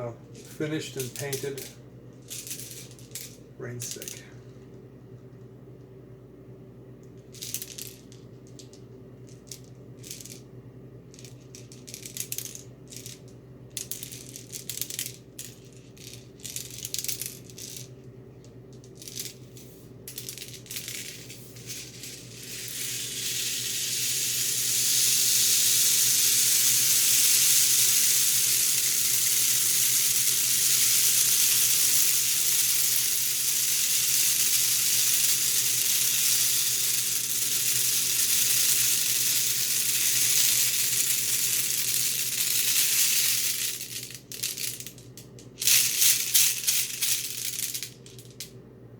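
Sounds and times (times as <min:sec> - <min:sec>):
rain stick hiss: 0:22.6 - 0:43.8.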